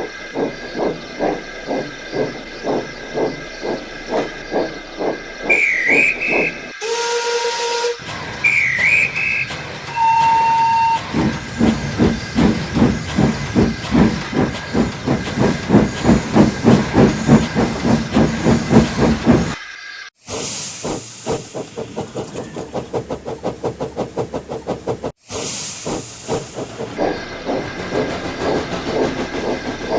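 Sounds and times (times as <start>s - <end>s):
steam locomotive exhaust chuffs: 0.0s - 19.6s, 20.2s - 29.9s
steam whistle blast: 6.8s - 11.2s
hissing steam: 20.2s - 29.9s.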